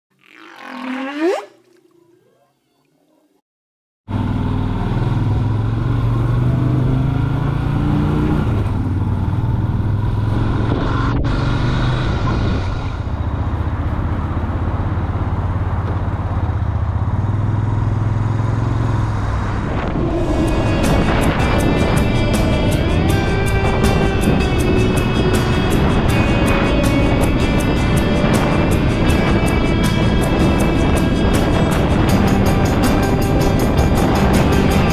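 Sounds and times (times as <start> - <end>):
music: 20.1 - 34.9
motorcycle engine running: 20.3 - 34.9.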